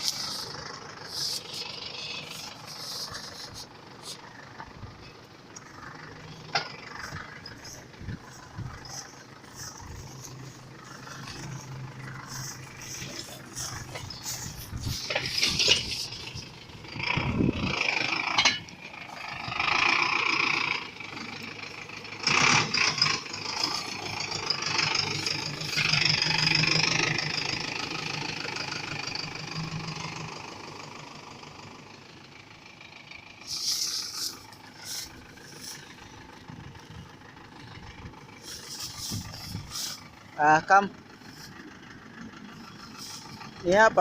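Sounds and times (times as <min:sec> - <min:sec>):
tractor engine running: 0:00.0 - 0:44.0
metallic rattling: 0:05.0 - 0:19.5.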